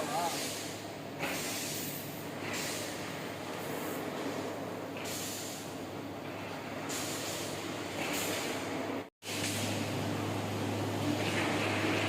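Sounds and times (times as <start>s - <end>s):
hiss: 0.0s - 4.0s, 5.0s - 5.7s, 6.9s - 9.7s
industrial machinery hum: 0.0s - 12.0s.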